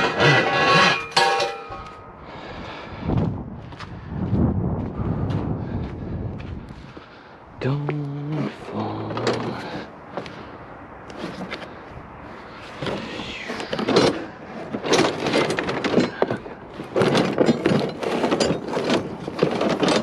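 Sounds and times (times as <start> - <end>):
scrap metal clanking and scraping: 0.0 - 2.6, 8.3 - 20.0.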